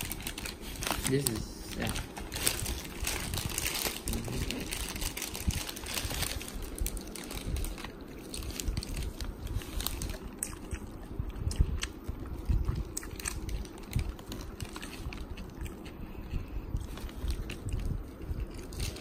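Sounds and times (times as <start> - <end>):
wet chewing: 7.0 - 19.0.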